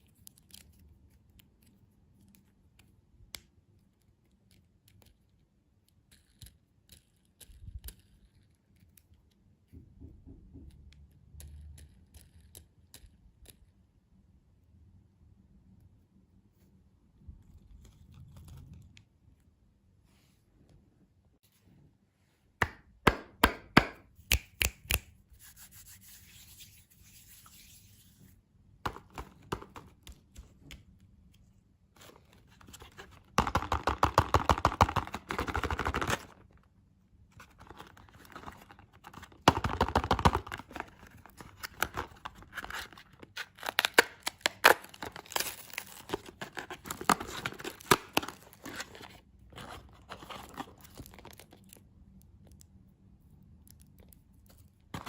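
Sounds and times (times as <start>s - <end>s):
wrapper tearing and crinkling: 42.5s - 49.0s.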